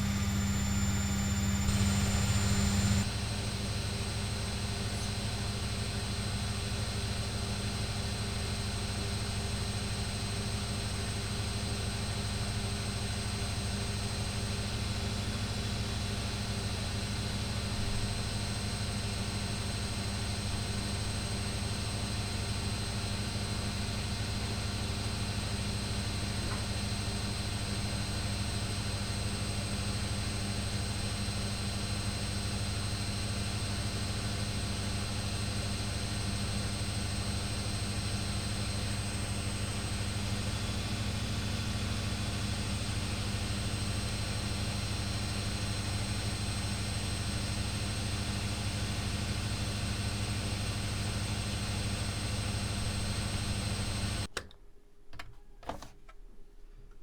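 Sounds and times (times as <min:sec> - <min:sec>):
washing machine humming: 0:00.0 - 0:03.1, 0:48.4 - 0:54.3.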